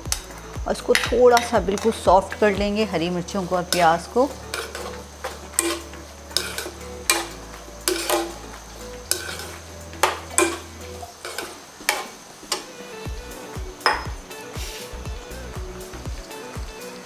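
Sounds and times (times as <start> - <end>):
onions sizzling in hot oil: 0.0 - 17.0
spatula scraping and knocking pan: 0.1 - 2.8, 3.6 - 12.7, 13.8 - 14.8.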